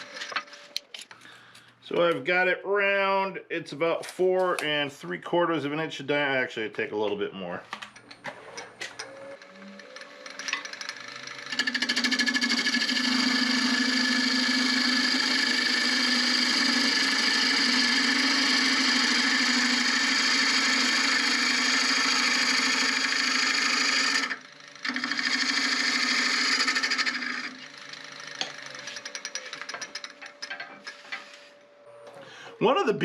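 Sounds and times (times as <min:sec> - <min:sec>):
lathe hum: 0:00.0 - 0:00.9, 0:08.3 - 0:32.2
lathe tool rasping wood: 0:09.3 - 0:31.6.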